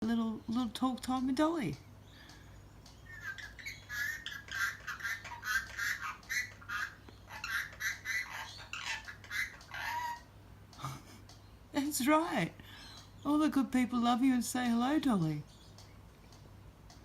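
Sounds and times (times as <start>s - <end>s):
parrot talking: 3.0s - 10.3s.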